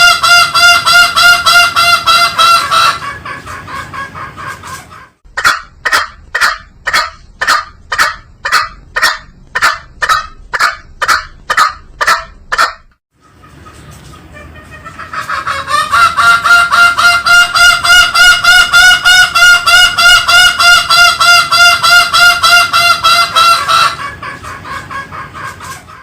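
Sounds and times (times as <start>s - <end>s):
junglefowl calling nasal notes: 0.0s - 26.0s.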